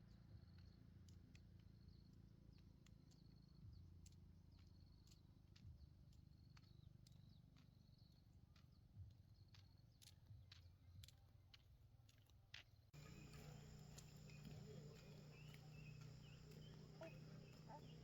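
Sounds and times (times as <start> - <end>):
faint clicks: 13.0 - 18.0
low steady hum: 13.0 - 18.0
soft chirps: 13.0 - 18.0.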